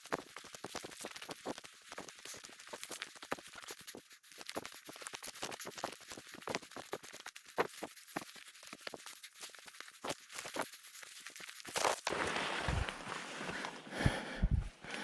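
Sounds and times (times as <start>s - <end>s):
footsteps crunching on rough surface: 11.7s - 13.8s.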